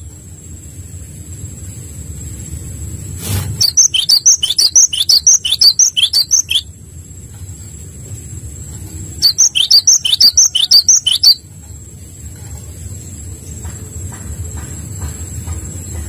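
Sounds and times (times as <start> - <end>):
low background rumble: 0.0 - 16.0
songbird chirping: 3.6 - 6.8, 7.5 - 16.0.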